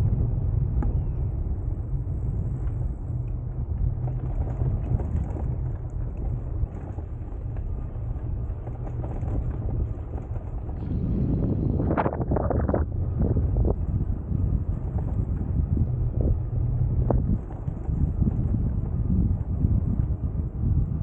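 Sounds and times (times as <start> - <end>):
bicycle tyres rolling on path: 0.0 - 21.0
wind buffeting microphone: 0.0 - 21.0.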